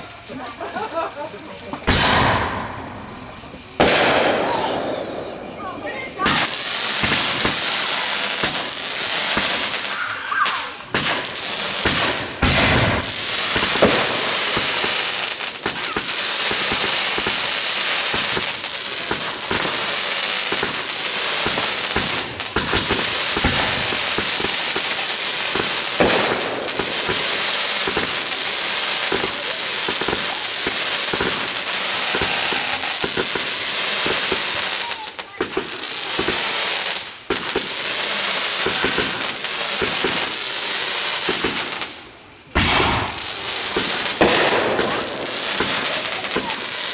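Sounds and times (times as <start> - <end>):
fireworks crackling: 0.0 - 46.9.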